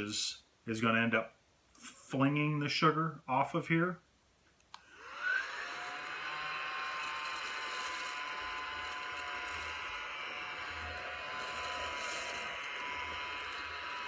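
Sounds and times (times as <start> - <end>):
mini vacuum whirring: 4.8 - 14.0.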